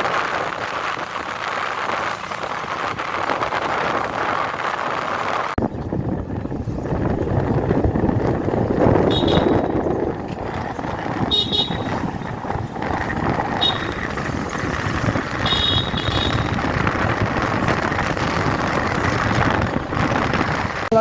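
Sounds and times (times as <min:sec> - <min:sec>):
road and wind rush: 0:00.0 - 0:21.0
high-pitched vehicle horn beeps: 0:09.1 - 0:09.8, 0:11.2 - 0:12.2, 0:13.5 - 0:14.3, 0:15.4 - 0:16.6.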